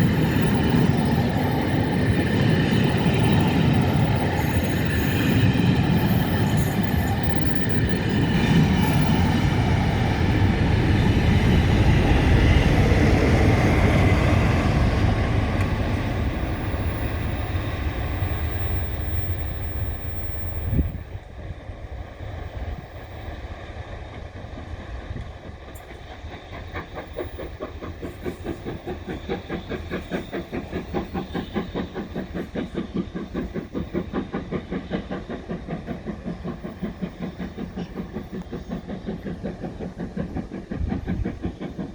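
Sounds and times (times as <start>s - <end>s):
train wheels clattering over rail joints: 24.0s - 41.9s.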